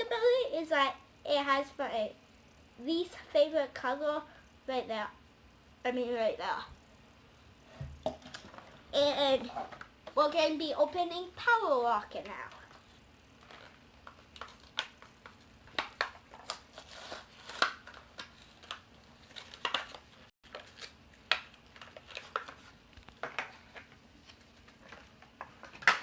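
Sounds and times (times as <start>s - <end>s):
plastic packaging being torn open: 15.7s - 22.6s.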